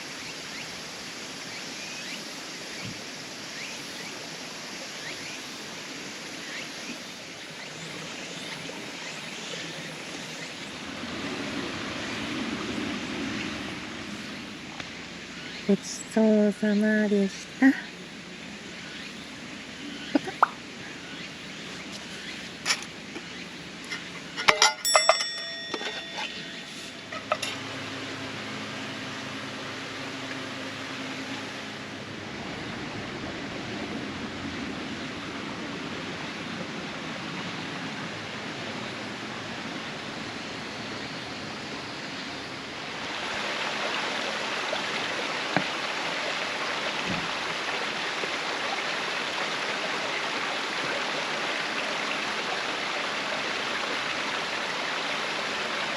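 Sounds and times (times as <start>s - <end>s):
steady rushing hiss: 0.0s - 24.7s
metal cookware clinking: 23.9s - 27.6s.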